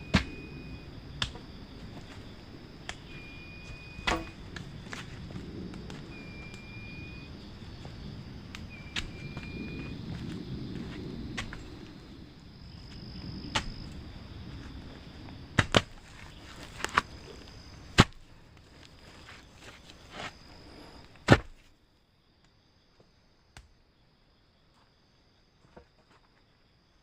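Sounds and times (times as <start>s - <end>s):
insect trilling: 0.0s - 21.2s
low rumbling rustle: 0.5s - 21.2s
sharp knocks and cracks: 1.2s - 1.5s, 4.0s - 6.0s, 13.5s - 13.8s, 15.6s - 17.1s, 17.9s - 18.3s.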